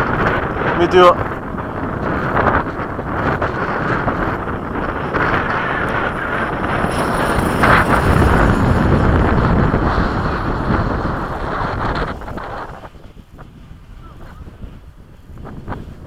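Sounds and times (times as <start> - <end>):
model jet high whine: 0.0 - 13.2
wind buffeting microphone: 0.0 - 16.0.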